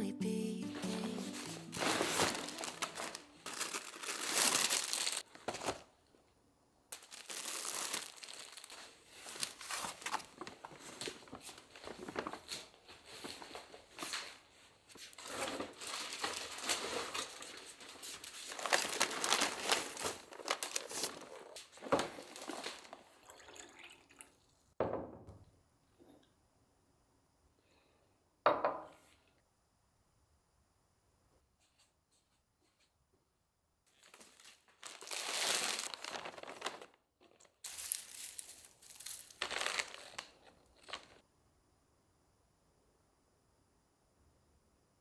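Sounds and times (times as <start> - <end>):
plastic packaging crinkling: 0.8 - 6.2, 6.9 - 14.4, 15.0 - 23.6, 34.0 - 41.2.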